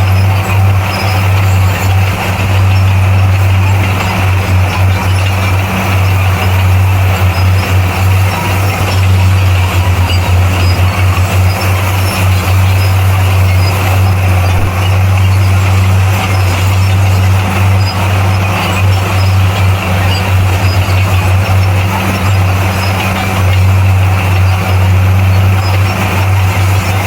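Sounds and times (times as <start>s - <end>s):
heavy diesel engine droning: 0.0s - 27.0s.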